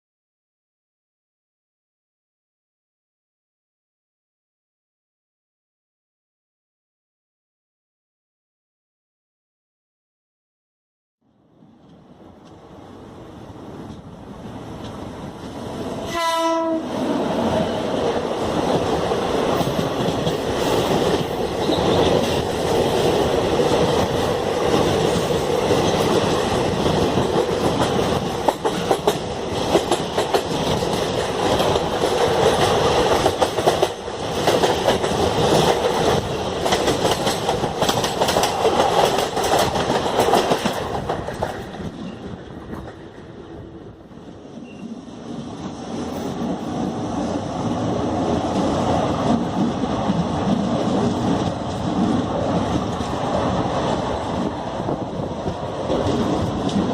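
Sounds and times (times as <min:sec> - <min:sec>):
train passing with wheel clatter: 0:11.5 - 0:56.9
train horn: 0:16.0 - 0:17.0.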